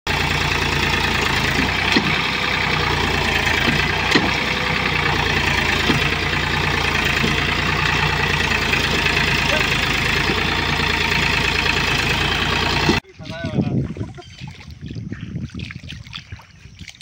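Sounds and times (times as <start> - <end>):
tractor diesel engine idling: 0.1 - 13.0.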